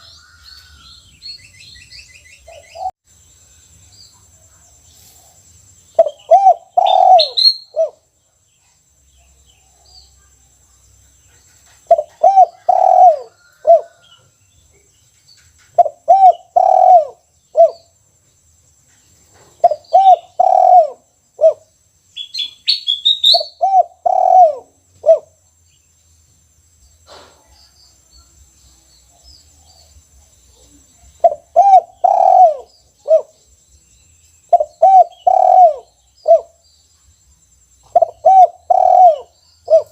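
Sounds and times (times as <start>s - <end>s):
small bird chirping: 0.0s - 39.9s
dove cooing: 6.0s - 8.0s, 11.8s - 14.1s, 15.8s - 17.8s, 19.6s - 21.6s, 23.2s - 25.3s, 30.6s - 33.4s, 34.5s - 36.6s, 37.9s - 39.9s.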